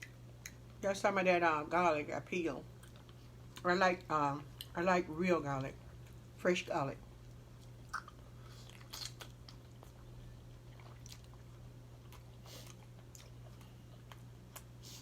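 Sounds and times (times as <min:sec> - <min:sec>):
low steady hum: 0:00.0 - 0:15.0
person chewing food: 0:02.7 - 0:03.6, 0:07.2 - 0:15.0.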